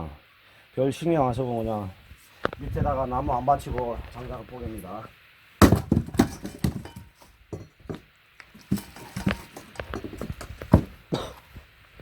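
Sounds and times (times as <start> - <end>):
axe splitting wood: 5.6 - 8.0, 8.6 - 11.3
wood pieces clattering: 5.6 - 8.0, 8.6 - 11.2.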